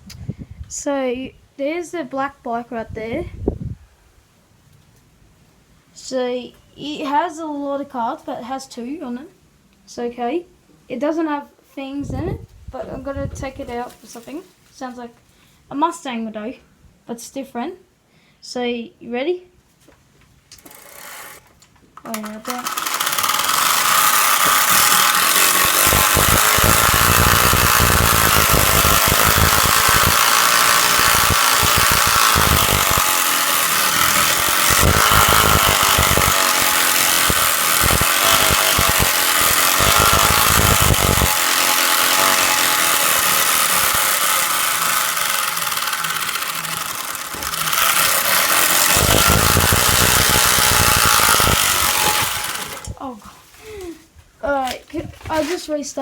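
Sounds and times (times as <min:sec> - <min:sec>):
cards rattling against bike spokes: 0:40.6 - 0:52.9.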